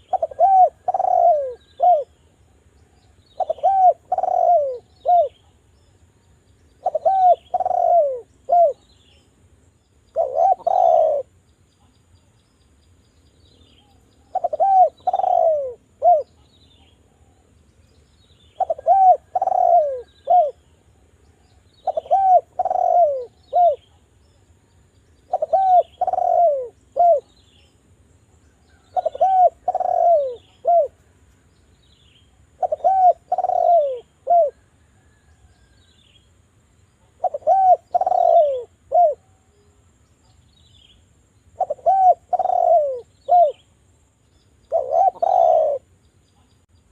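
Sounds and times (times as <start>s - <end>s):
dove cooing: 0.0s - 2.2s, 3.4s - 5.5s, 6.8s - 8.9s, 10.1s - 11.3s, 13.9s - 16.4s, 18.6s - 20.7s, 21.8s - 24.0s, 25.2s - 27.4s, 28.6s - 31.0s, 32.4s - 35.7s, 37.0s - 39.6s, 41.6s - 43.6s, 44.7s - 45.9s
small birds chirping: 0.0s - 46.9s.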